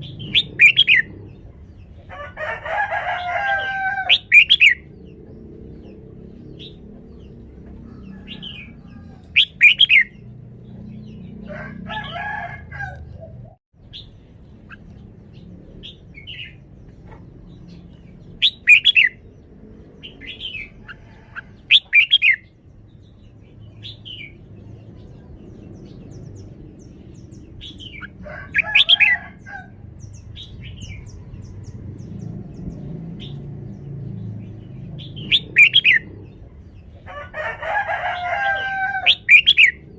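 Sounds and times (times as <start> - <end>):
bulbul warbling song: 0.0 - 1.5, 8.4 - 11.5, 17.5 - 19.3, 35.0 - 36.2.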